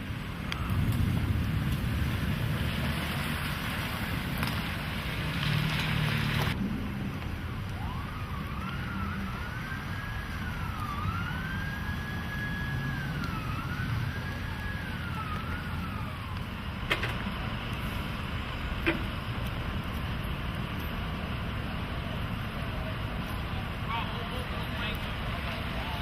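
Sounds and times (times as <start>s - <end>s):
steady low rumble: 0.0s - 5.4s
siren wailing: 0.4s - 1.4s, 7.5s - 17.4s.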